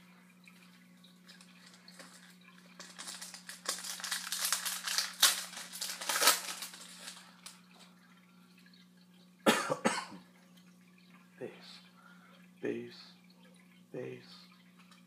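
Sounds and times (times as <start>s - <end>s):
wrapper crinkling and tearing: 1.6s - 7.6s.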